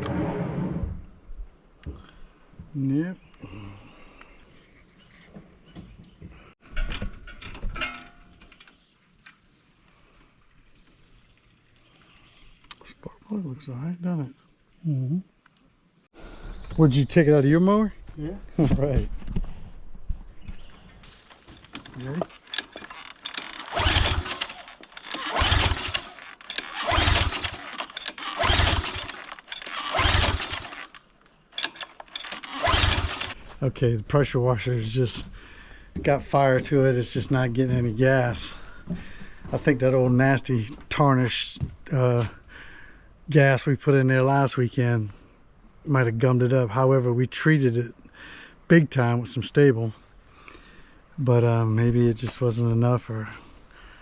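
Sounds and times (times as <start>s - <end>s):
small engine turning over: 21.4s - 31.0s, 31.6s - 33.4s
recoil cord pulls: 21.4s - 33.4s
mechanical clicks and rattles: 21.6s - 31.0s, 31.6s - 33.4s.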